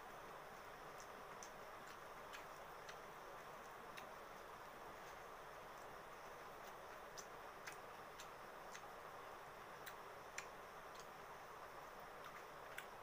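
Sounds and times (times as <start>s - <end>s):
steady low hiss: 0.0s - 13.0s
chewing and lip-smacking: 0.9s - 4.4s.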